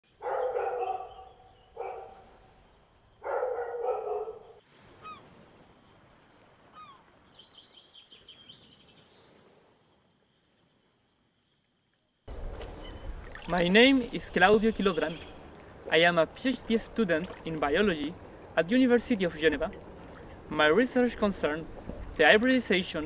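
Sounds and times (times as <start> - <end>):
large bird calling: 6.7 - 8.9, 12.4 - 15.9.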